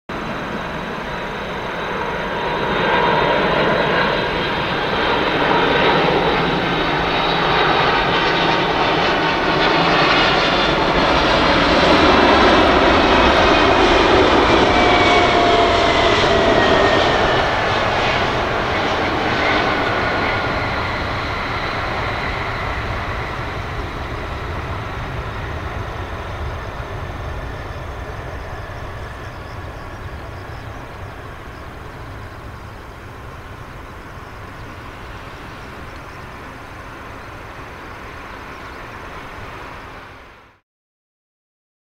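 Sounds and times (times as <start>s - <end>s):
jet engines passing: 0.1s - 40.6s.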